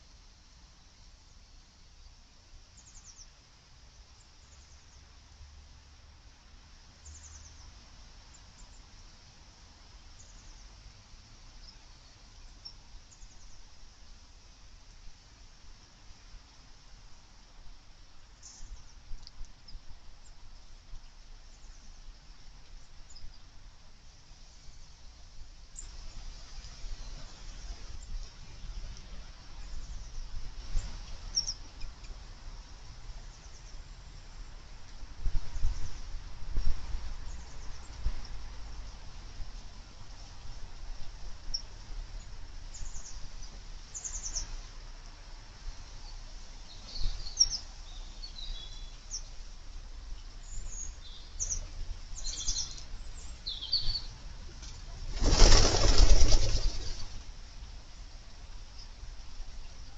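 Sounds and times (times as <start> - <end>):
low rumbling background noise: 0.0 - 59.9
faint bird chirps: 2.8 - 3.4, 29.6 - 32.2, 50.2 - 54.2
wings flapping: 54.7 - 57.3.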